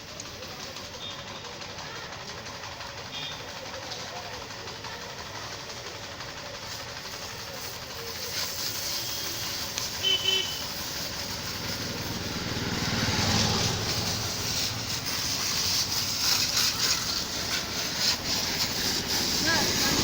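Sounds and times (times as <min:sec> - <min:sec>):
road traffic: 0:00.0 - 0:20.0
vehicle passing close: 0:08.6 - 0:20.0.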